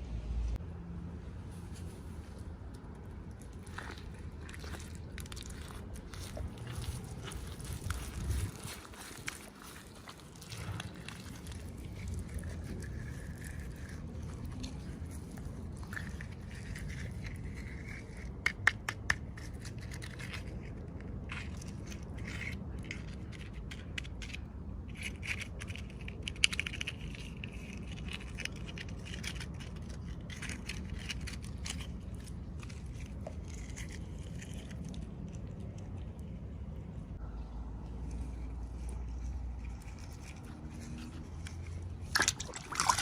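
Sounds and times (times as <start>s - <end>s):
plastic packaging crinkling: 3.4s - 15.1s
steady low hum: 29.6s - 43.0s.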